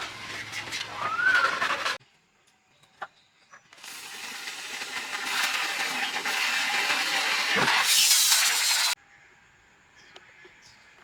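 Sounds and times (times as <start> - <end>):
steady hiss: 3.8 - 9.0.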